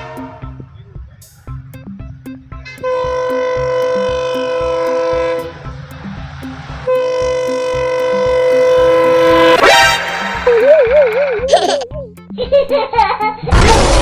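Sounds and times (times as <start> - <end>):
train horn blasts: 0.0 - 0.7, 2.6 - 5.9, 6.6 - 10.5
low even thumping: 0.0 - 9.6.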